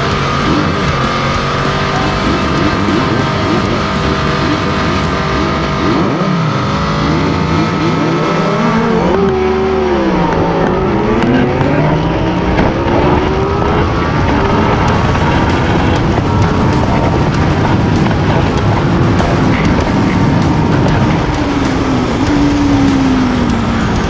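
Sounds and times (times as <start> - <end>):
motorcycle engines revving hard: 0.0 - 24.0.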